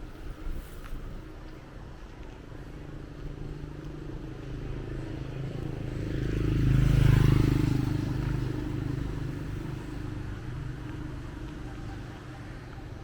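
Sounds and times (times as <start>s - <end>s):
low traffic noise: 0.0s - 13.0s
vehicle passing close by: 3.4s - 13.0s.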